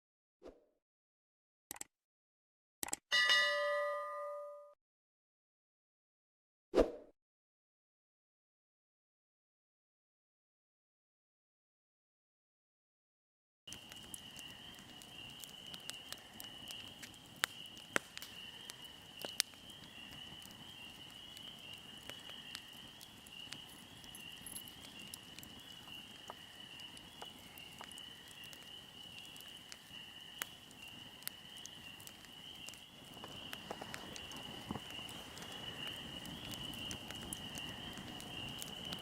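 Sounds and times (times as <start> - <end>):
fire crackling and popping: 13.7 - 39.0
insect trill: 13.8 - 39.0.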